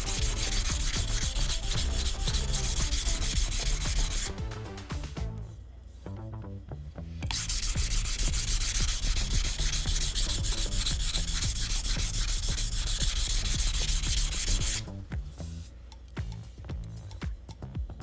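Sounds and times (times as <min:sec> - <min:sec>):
knife scraping on whetstone: 0:00.0 - 0:04.4, 0:07.2 - 0:15.7.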